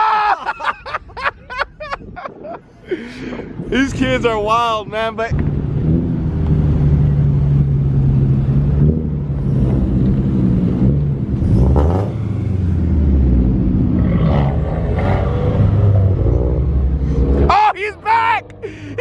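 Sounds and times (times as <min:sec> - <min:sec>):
car engine revving: 0:05.3 - 0:17.5.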